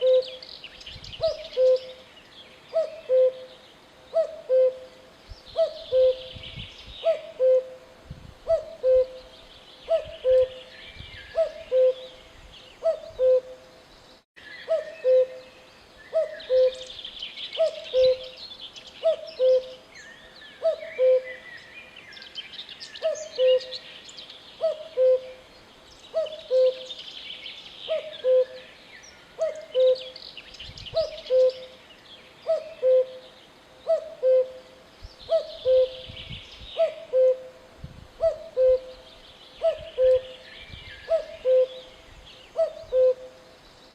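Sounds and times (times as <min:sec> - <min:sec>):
cuckoo calling: 0:00.0 - 0:00.5, 0:01.2 - 0:02.0, 0:02.7 - 0:05.0, 0:05.6 - 0:06.4, 0:07.0 - 0:07.8, 0:08.4 - 0:12.2, 0:12.8 - 0:13.6, 0:14.5 - 0:18.4, 0:19.0 - 0:19.8, 0:20.6 - 0:21.4, 0:23.0 - 0:23.8, 0:24.6 - 0:25.4, 0:26.1 - 0:27.0, 0:27.9 - 0:28.8, 0:29.4 - 0:30.2, 0:30.9 - 0:31.8, 0:32.4 - 0:37.6, 0:38.2 - 0:43.4.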